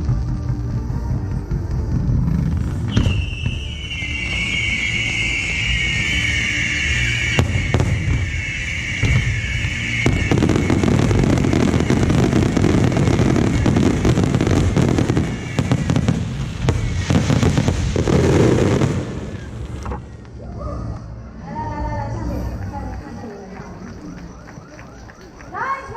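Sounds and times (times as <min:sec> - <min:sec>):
fireworks bangs and crackling: 0:00.0 - 0:20.2.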